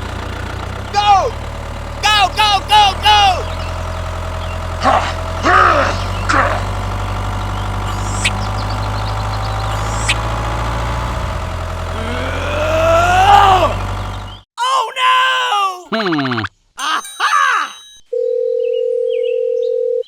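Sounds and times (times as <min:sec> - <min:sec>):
pitched whine: 0:00.0 - 0:14.4
toy tractor engine hum: 0:00.0 - 0:14.4.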